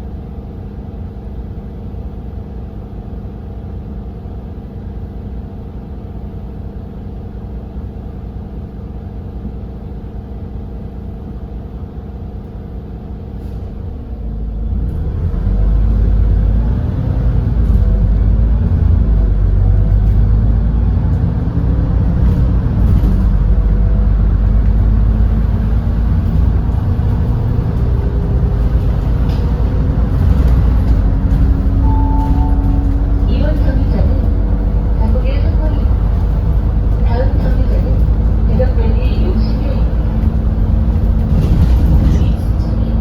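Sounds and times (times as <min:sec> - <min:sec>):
bus engine idling and accelerating: 0:00.0 - 0:43.0
transmission shifting: 0:25.6 - 0:43.0.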